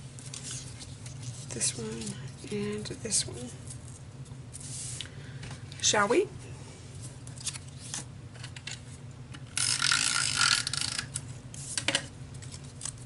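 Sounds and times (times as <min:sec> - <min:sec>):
tape runner rolling tape: 0:07.4 - 0:12.0.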